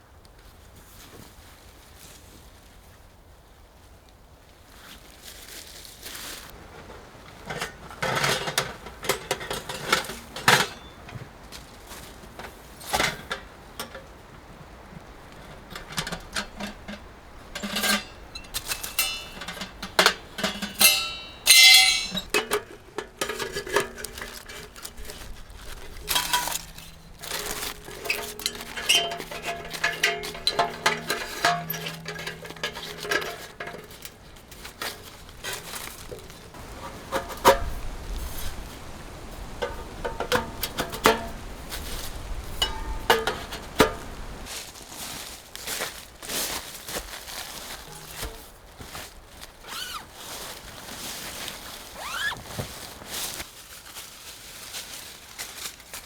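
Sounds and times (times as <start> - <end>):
metal camping gear clinking: 6.5 - 54.0
bright ringing clank: 16.0 - 22.7, 26.0 - 34.1, 42.6 - 44.1.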